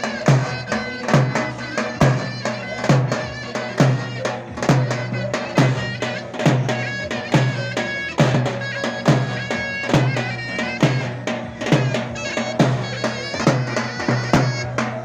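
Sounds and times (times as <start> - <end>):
booming drum beat: 0.0 - 15.0
shrill double-reed pipe melody: 0.0 - 15.0.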